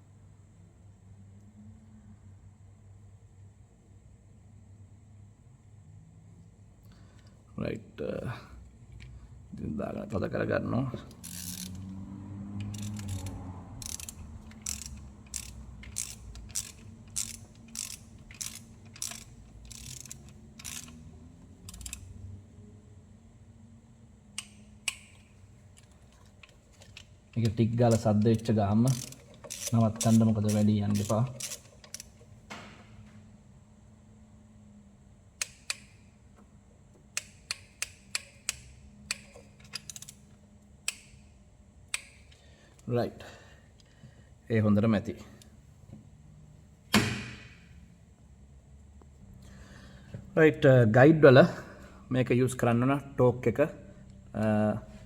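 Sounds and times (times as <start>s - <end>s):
socket ratchet clicking: 11.1s - 12.0s, 12.6s - 22.2s, 24.3s - 32.3s, 35.4s - 36.1s, 37.1s - 41.3s, 41.9s - 42.4s.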